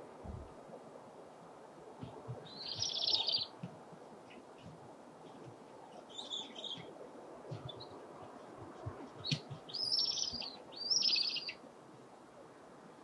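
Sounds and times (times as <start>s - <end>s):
high bird calls: 2.4s - 3.6s, 5.3s - 6.9s, 9.2s - 11.6s
high rattling bird trill: 2.5s - 3.5s.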